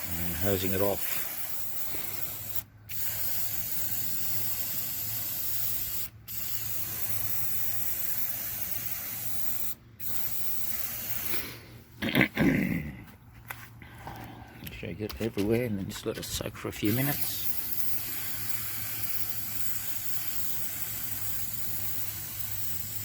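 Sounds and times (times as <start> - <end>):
spray can hissing: 0.0 - 11.6, 16.8 - 23.0.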